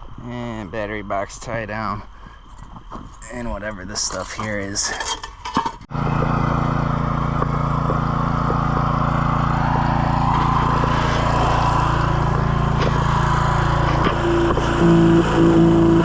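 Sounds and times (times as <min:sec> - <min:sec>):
small engine running: 0:05.9 - 0:16.0.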